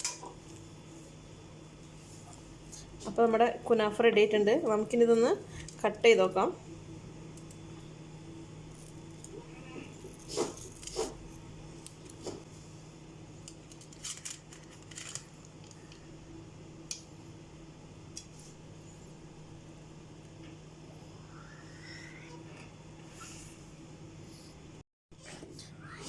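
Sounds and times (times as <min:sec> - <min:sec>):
steady low hum: 0:00.0 - 0:24.8
knife crunching through crisp pastry: 0:08.8 - 0:11.5.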